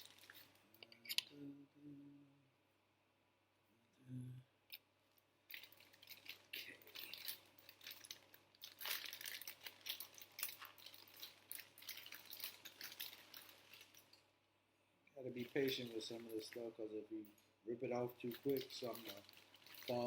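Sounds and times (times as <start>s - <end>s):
plastic bag crinkling: 0.0s - 0.7s, 5.6s - 14.2s, 18.2s - 20.0s.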